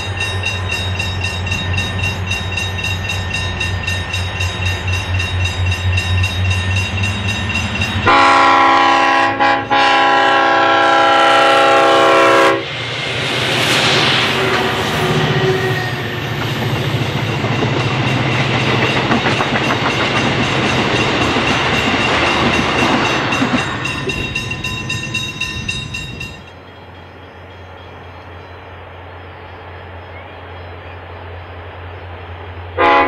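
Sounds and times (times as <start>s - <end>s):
distant locomotive drone: 0.0s - 33.0s
locomotives passing at speed: 11.1s - 27.2s
wheels clacking over rail joints: 15.3s - 28.6s.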